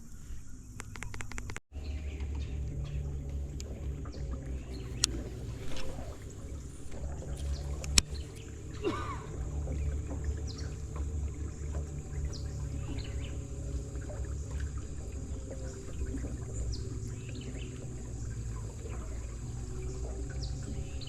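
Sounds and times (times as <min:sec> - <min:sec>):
boat engine rumbling: 0:00.0 - 0:21.0
sharp click: 0:00.8 - 0:01.6
bird-like chirp: 0:04.0 - 0:08.9.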